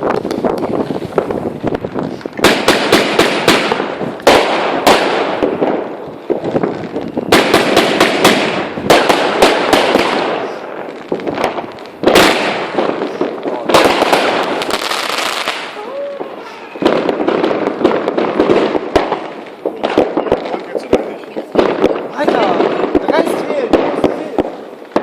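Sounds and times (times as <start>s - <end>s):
firework bangs: 0.0s - 25.0s
firework crackling: 0.0s - 25.0s.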